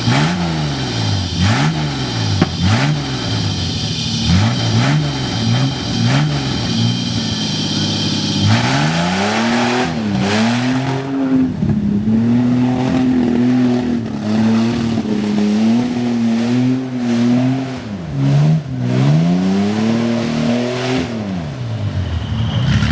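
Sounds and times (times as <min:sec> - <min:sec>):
car engine revving hard: 0:00.0 - 0:22.9.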